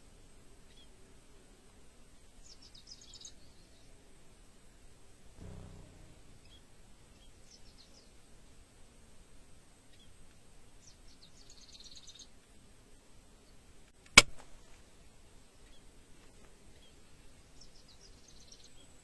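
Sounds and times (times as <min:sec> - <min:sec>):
small birds chirping: 0:00.6 - 0:01.0, 0:02.0 - 0:04.0, 0:05.4 - 0:08.4, 0:09.7 - 0:12.6, 0:13.3 - 0:19.0
loud sharp snap: 0:14.0 - 0:14.5.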